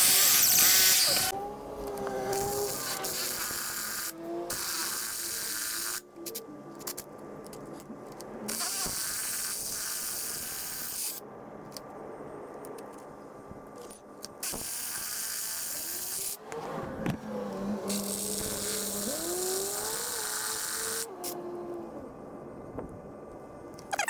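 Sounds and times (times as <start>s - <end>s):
power drill boring into concrete: 0.0s - 1.3s.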